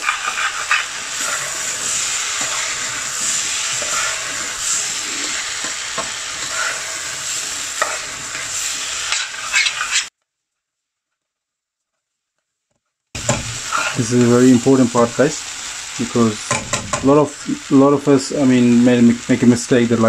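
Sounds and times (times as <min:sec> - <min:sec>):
food sizzling in saucepan: 0:00.0 - 0:10.1, 0:13.2 - 0:20.0
metal spoon scraping pan: 0:00.0 - 0:10.1, 0:13.2 - 0:14.4.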